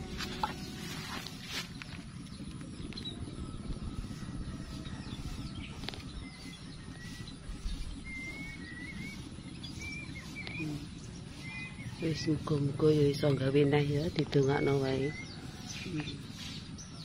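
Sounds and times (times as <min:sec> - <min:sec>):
steady low rumble: 0:00.0 - 0:17.0
bird warbling whistled notes: 0:06.3 - 0:12.0.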